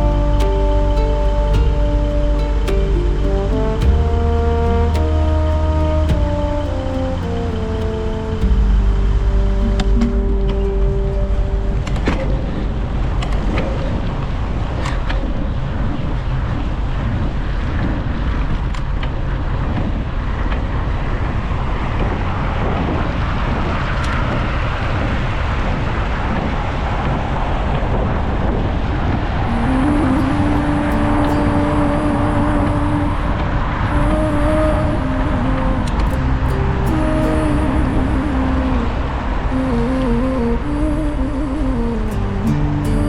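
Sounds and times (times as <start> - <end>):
humming tone sliding up: 0.0 - 13.1
heavy low rumble: 0.0 - 14.8, 28.0 - 43.0.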